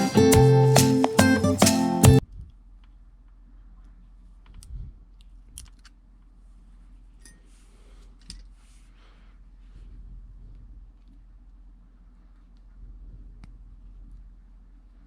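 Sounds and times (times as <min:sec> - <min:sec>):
faint clicks of small parts: 0:04.4 - 0:06.0.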